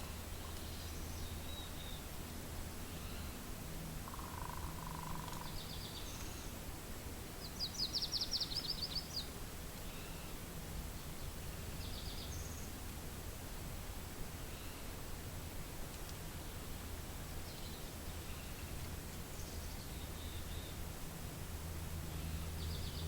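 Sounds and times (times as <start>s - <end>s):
songbirds calling: 0.0s - 2.2s, 2.8s - 6.7s, 7.4s - 12.9s, 14.4s - 15.0s, 16.8s - 20.9s, 22.1s - 23.0s
lower warbling bird call: 4.0s - 6.6s.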